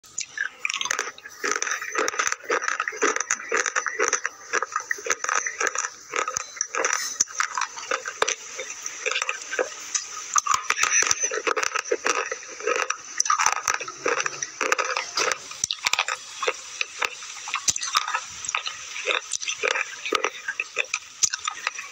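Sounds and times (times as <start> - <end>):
chewing crunches: 0.1 - 21.9.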